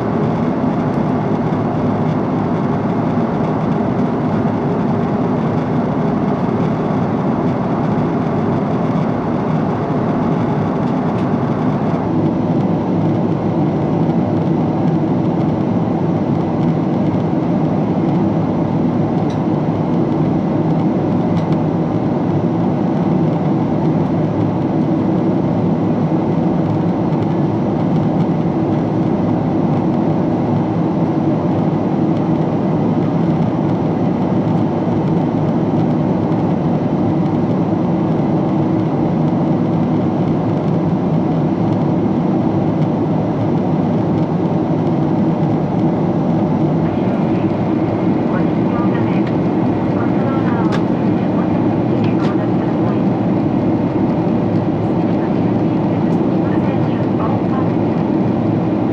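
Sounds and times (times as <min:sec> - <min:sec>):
airliner cabin engine noise: 0:00.0 - 0:58.9.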